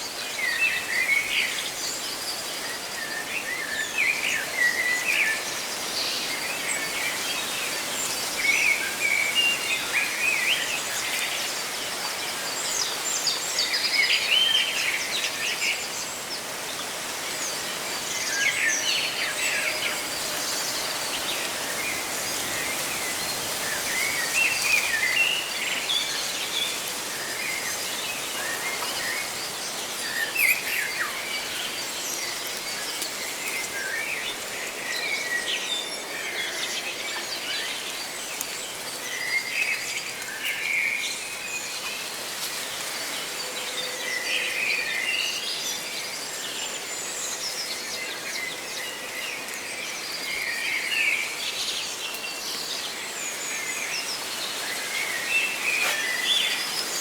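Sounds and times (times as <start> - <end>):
small birds chirping: 0.0 - 43.8
leaves rustling in wind: 0.0 - 57.0.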